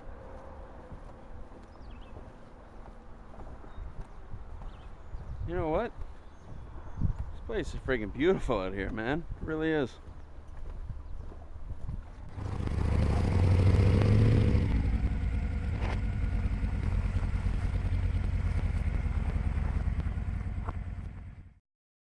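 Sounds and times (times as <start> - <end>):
motorcycle engine running: 12.3 - 21.6.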